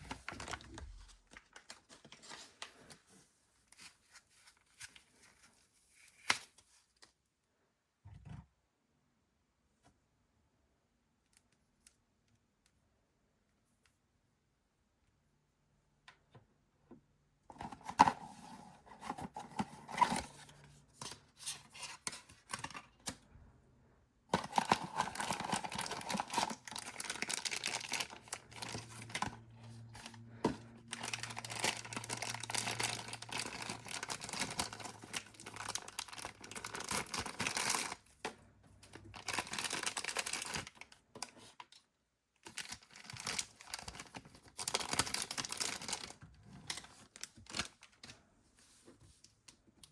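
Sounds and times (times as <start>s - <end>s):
packaging tearing and crinkling: 24.3s - 30.2s, 30.8s - 38.1s, 39.0s - 40.9s, 42.4s - 47.9s.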